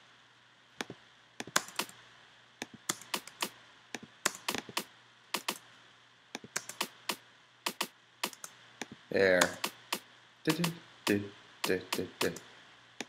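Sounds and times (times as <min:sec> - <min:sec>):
faint steady hum: 0:00.0 - 0:13.0
mouse and keyboard clicks: 0:00.8 - 0:02.0, 0:02.6 - 0:05.6, 0:06.4 - 0:10.0, 0:10.6 - 0:12.4.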